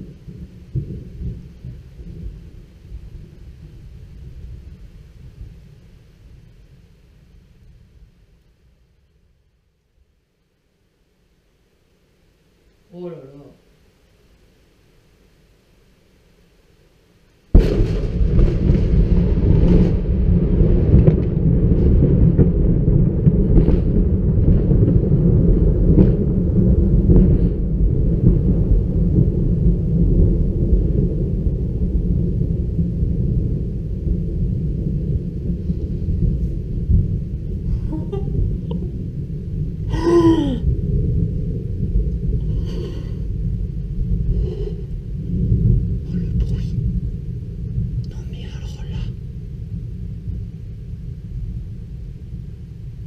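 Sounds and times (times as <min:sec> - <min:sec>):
thunder crack: 0:00.0 - 0:05.6, 0:17.5 - 0:53.0
thunder rumbling: 0:00.0 - 0:09.0, 0:17.5 - 0:53.0
person exclaiming: 0:37.7 - 0:38.9, 0:39.9 - 0:40.6.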